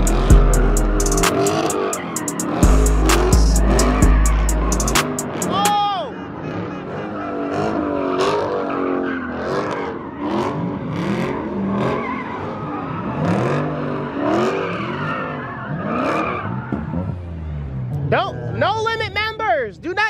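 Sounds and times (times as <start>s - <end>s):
tyres screeching: 0.0s - 10.6s
car engines revving: 0.0s - 20.0s.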